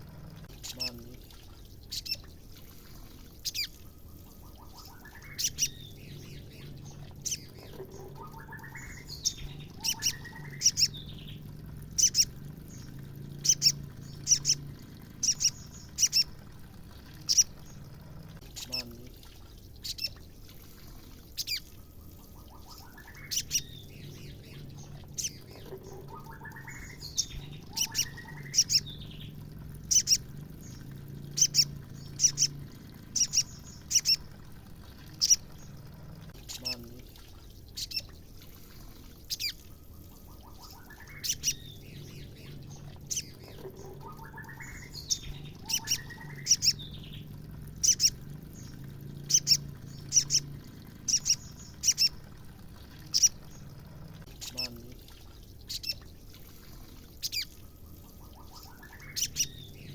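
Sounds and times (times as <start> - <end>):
bird clicking calls: 25.2 - 28.9.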